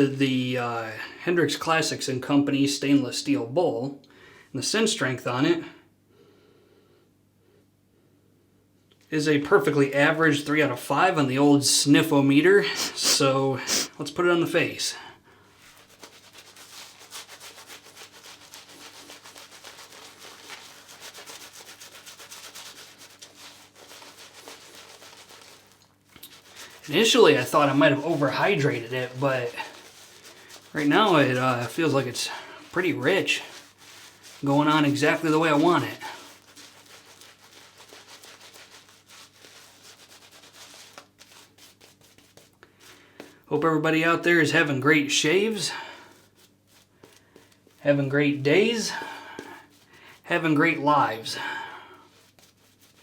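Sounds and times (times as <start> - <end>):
shaving brush scrubbing lather: 12.0 - 15.0, 15.6 - 43.4, 44.1 - 53.0.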